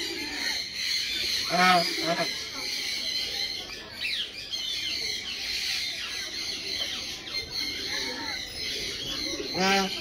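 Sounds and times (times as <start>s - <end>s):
birds chirping and squawking: 0.0s - 10.0s.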